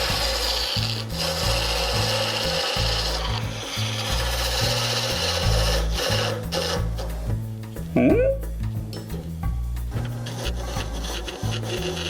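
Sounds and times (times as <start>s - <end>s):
lathe tool shaving wood: 0.0s - 7.2s, 10.1s - 12.0s
background music bass line: 2.8s - 11.0s.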